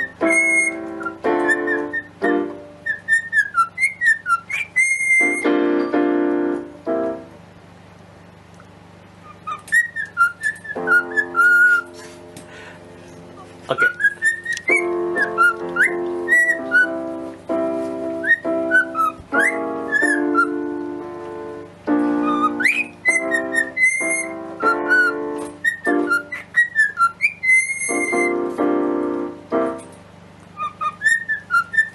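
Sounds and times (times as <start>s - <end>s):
cockatiel whistling a tune: 0.0s - 6.0s, 9.2s - 12.1s, 13.7s - 20.9s, 22.0s - 28.6s, 30.6s - 31.9s
piano chords: 0.0s - 31.9s.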